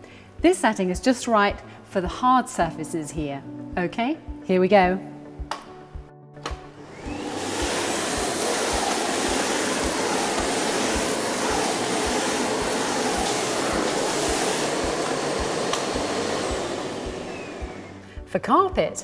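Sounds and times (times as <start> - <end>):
soft background music: 0.0 - 19.0
vacuum cleaner on hard floor: 6.8 - 18.1.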